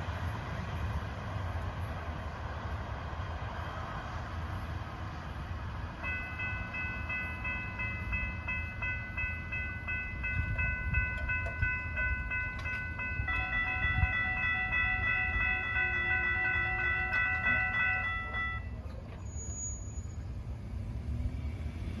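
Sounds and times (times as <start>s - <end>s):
high ringing tone: 6.0s - 20.2s
freight cars clacking over rails: 8.8s - 19.2s.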